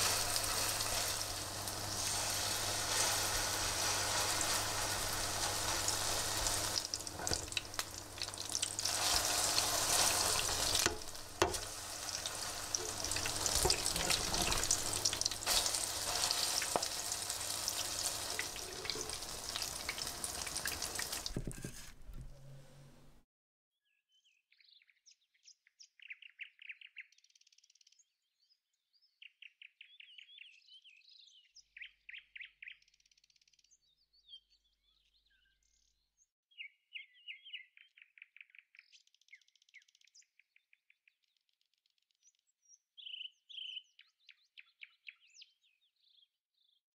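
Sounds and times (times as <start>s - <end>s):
songbirds chirping and singing: 42.2s - 46.8s.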